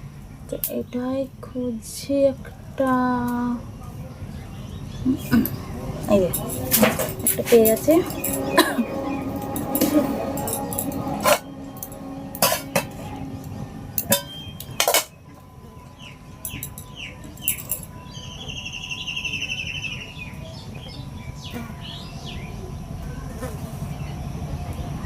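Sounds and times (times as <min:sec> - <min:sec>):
birds chirping: 0:03.5 - 0:23.2
sharp clinks: 0:05.3 - 0:15.2, 0:16.4 - 0:18.3.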